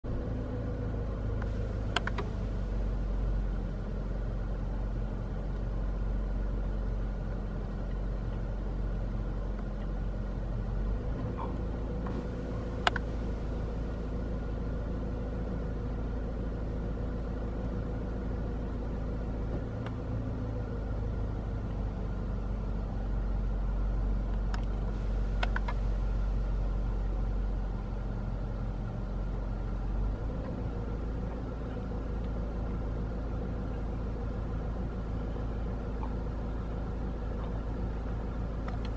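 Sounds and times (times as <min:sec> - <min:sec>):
car engine rumbling inside cabin: 0:00.0 - 0:38.9
sharp clicks: 0:12.8 - 0:13.1.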